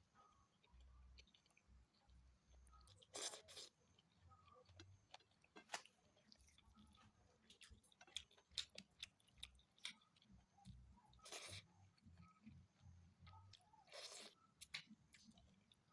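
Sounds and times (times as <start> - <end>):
person chewing food: 0.6 - 2.2, 2.8 - 15.9
food crunching: 2.9 - 12.6, 13.5 - 15.8.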